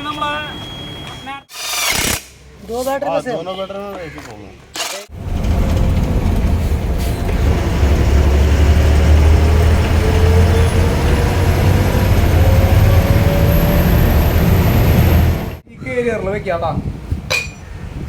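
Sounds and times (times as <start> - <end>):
bus engine rumble: 5.1 - 15.6.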